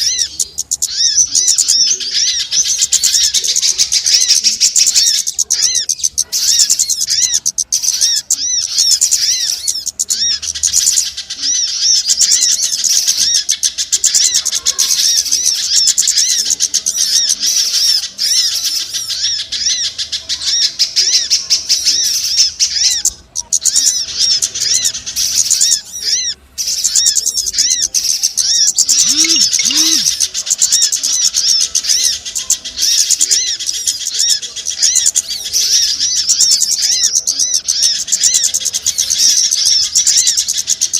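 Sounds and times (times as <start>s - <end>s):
songbirds chirping: 0.0s - 40.9s
low cooing: 28.8s - 30.4s.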